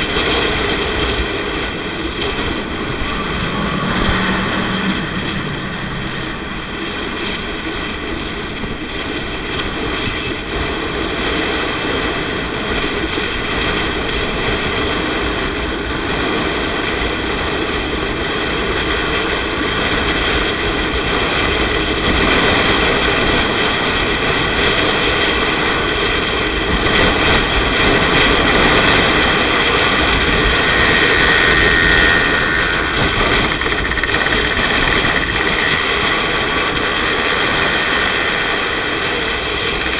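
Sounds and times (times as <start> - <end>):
motorcycle engine running: 0.0 - 10.2, 25.2 - 39.9
wind noise on microphone: 0.0 - 39.9.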